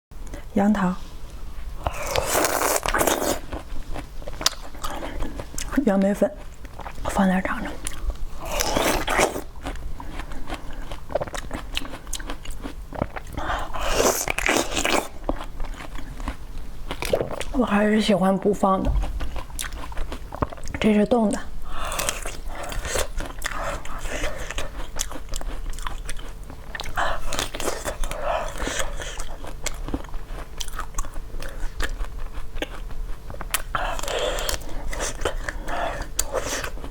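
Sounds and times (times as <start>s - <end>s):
crunchy biting and chewing: 1.8s - 5.8s, 7.8s - 17.6s, 18.9s - 20.8s, 21.7s - 36.9s.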